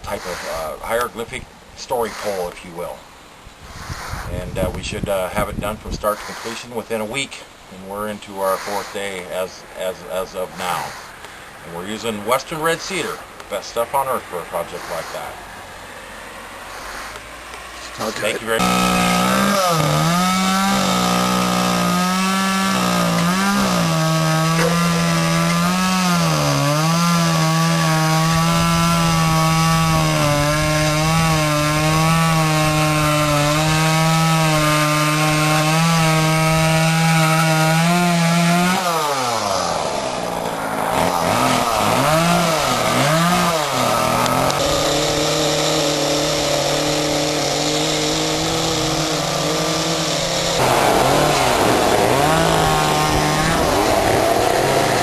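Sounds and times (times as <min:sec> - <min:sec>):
chainsaw cutting into log: 0:00.1 - 0:00.7, 0:03.8 - 0:04.4, 0:06.2 - 0:06.7, 0:16.7 - 0:55.0.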